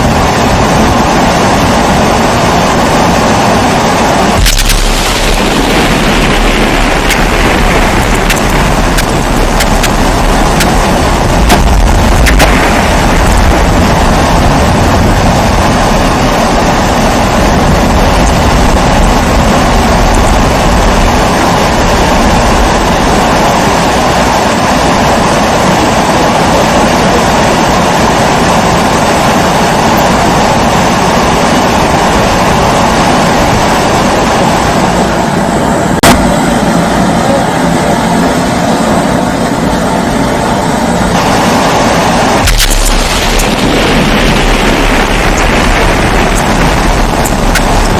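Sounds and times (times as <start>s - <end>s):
pressure stove burner rushing: 41.4s - 47.9s.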